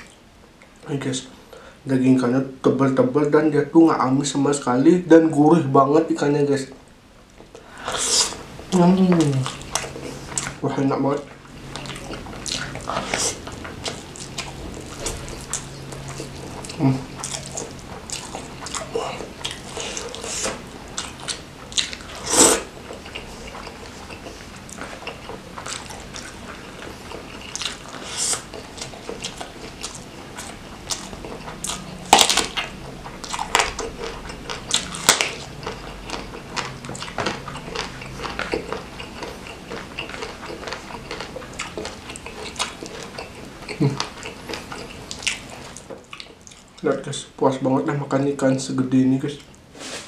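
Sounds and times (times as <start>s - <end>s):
lip smacks and chewing: 11.6s - 46.8s.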